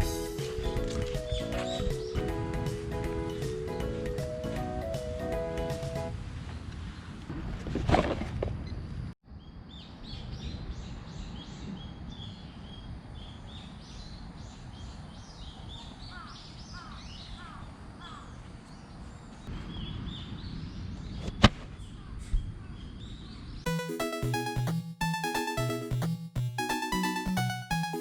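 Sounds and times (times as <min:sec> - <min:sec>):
birds chirping: 0:00.0 - 0:05.9, 0:09.4 - 0:24.6.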